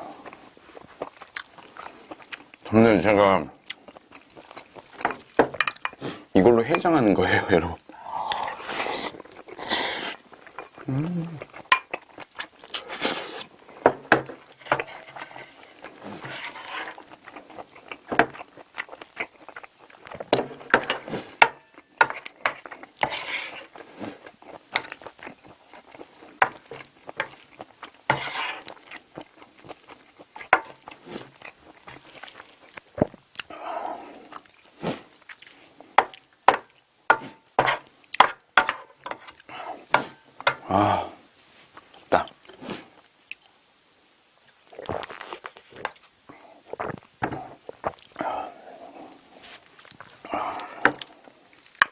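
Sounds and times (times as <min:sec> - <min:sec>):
chewing and smacking: 0:00.2 - 0:02.7, 0:03.6 - 0:06.0, 0:10.2 - 0:36.9, 0:46.7 - 0:48.2
spoon clicking and scraping dish: 0:05.0 - 0:06.0, 0:11.7 - 0:11.9, 0:14.1 - 0:15.5, 0:28.1 - 0:28.6, 0:36.0 - 0:39.4.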